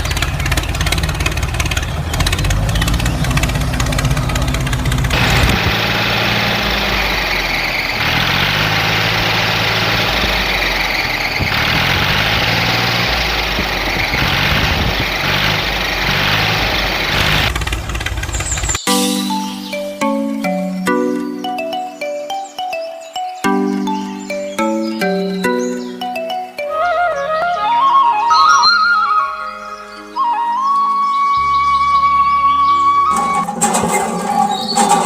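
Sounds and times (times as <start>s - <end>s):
tractor engine running: 0.0s - 21.8s, 33.1s - 35.0s.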